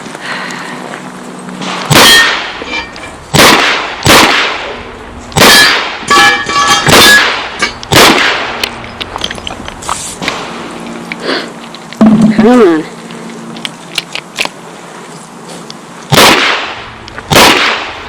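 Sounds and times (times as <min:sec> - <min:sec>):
revolver gunshots: 0:01.6 - 0:02.6, 0:03.3 - 0:04.8, 0:05.4 - 0:06.3, 0:06.9 - 0:08.7, 0:16.1 - 0:18.0
steel targets clanging: 0:01.6 - 0:03.2, 0:05.5 - 0:07.9.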